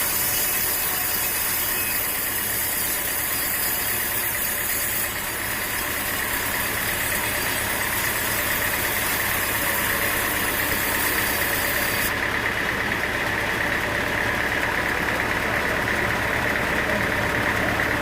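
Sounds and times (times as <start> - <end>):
machinery engine hum: 5.0 - 18.0.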